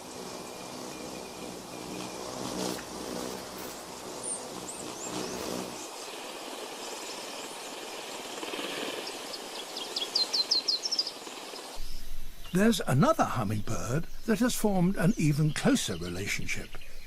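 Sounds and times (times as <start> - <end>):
low hum: 0.0 - 15.3
steady background hiss: 0.0 - 17.0
small bird chirping: 4.2 - 12.6.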